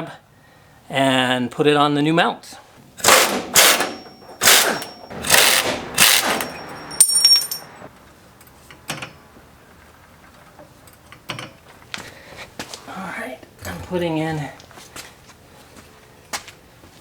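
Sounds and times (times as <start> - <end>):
metal tools clattering: 6.1 - 7.8
bright metallic ring: 6.4 - 7.8.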